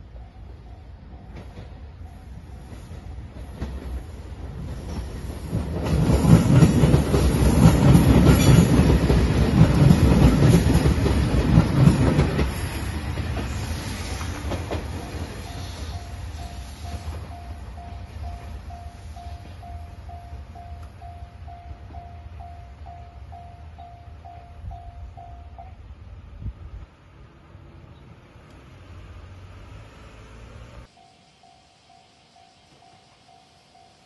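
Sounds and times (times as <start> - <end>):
diesel train engines passing: 0.0 - 34.0
wheels clattering over rail joints: 2.8 - 16.0.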